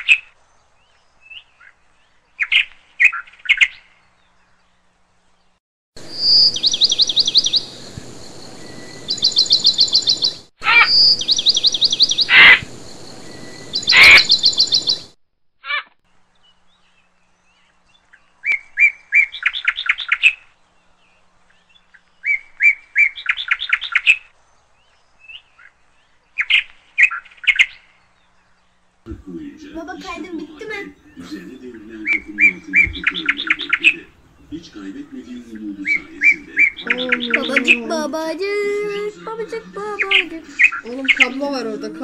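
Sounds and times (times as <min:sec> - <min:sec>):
birds trilling and chirping: 0:00.0 - 0:42.0
steady hiss: 0:06.0 - 0:10.5, 0:11.1 - 0:15.1.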